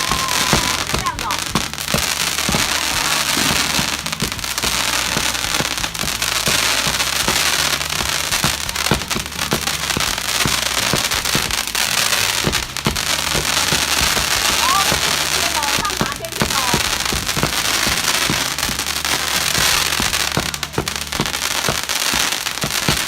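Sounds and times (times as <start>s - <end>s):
firework bangs: 0.0s - 23.0s
fireworks crackling: 0.0s - 23.0s.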